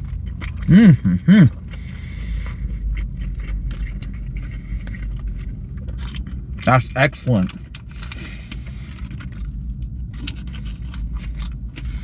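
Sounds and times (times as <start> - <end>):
man humming approvingly: 0.6 - 1.6.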